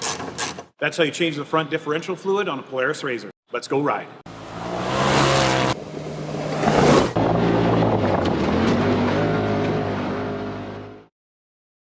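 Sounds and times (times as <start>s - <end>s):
loud rushing noise: 4.3s - 9.1s.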